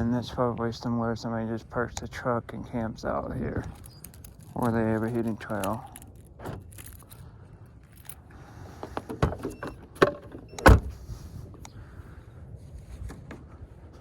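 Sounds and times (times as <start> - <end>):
objects clicking and knocking: 3.6 - 7.2.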